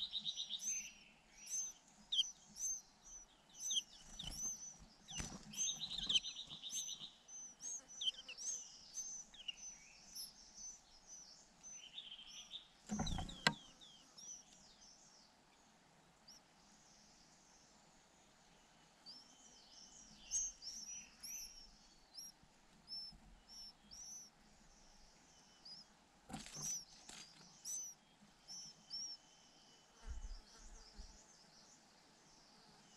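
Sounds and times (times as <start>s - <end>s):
birds chirping: 0.0s - 32.9s
dull thumps: 12.9s - 13.6s.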